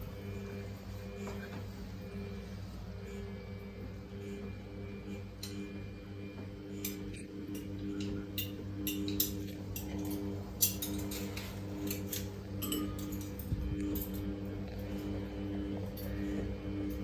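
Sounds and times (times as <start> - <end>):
washing machine motor hum: 0.0 - 17.0
light clinks: 8.0 - 14.3.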